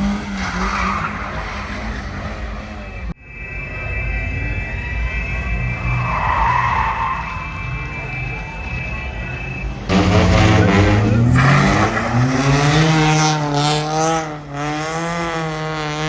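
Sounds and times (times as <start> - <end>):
car engine revving: 5.5 - 16.0.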